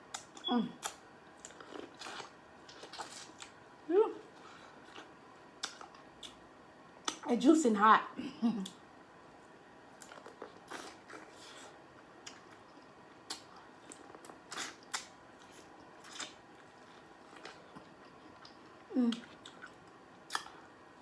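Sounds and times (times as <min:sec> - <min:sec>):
person chewing corn: 0:00.1 - 0:03.6, 0:04.3 - 0:06.4, 0:09.9 - 0:20.8
bite clicks: 0:05.6 - 0:06.4.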